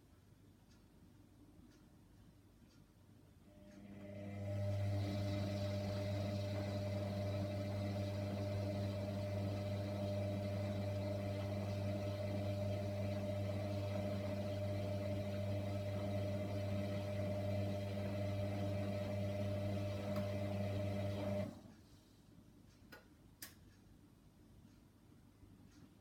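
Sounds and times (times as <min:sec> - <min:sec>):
washing machine hum: 0:03.5 - 0:22.0.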